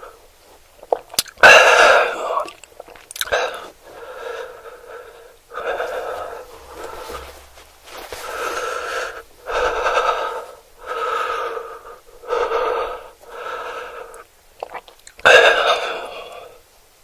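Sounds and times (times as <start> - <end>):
person breathing heavily: 3.4 - 14.2
person gasping: 3.5 - 14.2.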